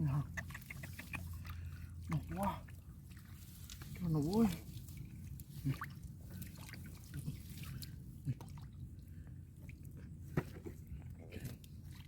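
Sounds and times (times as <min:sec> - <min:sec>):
water dripping and splashing: 0:00.3 - 0:10.0.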